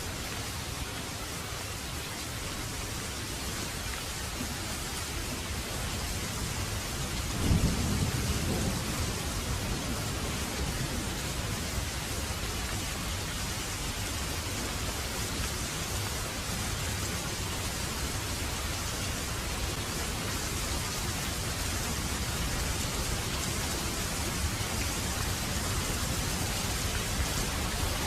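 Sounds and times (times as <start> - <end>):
heavy rain falling: 0.0 - 28.0
thunderclap rumbling: 7.4 - 11.2.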